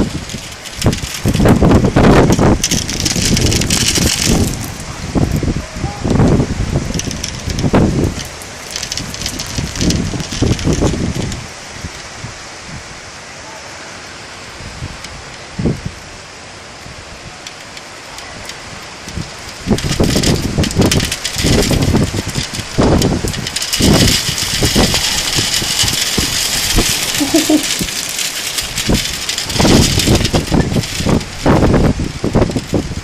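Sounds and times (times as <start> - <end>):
wind gusts buffeting microphone: 0.0 - 13.4, 14.2 - 33.0
heavy rain hissing: 0.0 - 33.0.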